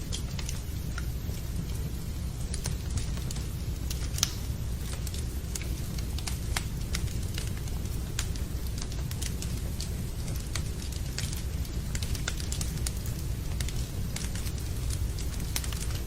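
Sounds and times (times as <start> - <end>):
rain rumble: 0.0 - 16.0
wood fire crackling: 0.0 - 16.0.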